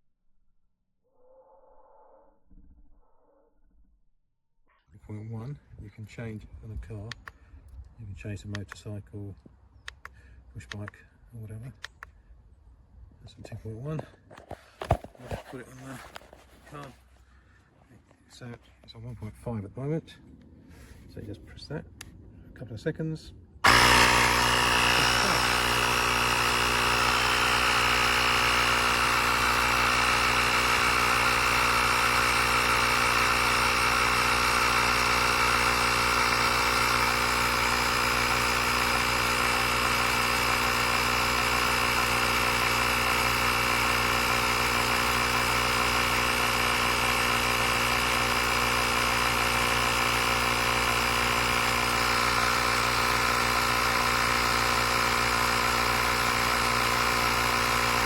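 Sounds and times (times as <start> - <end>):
air compressor motor drone: 23.6 - 58.0.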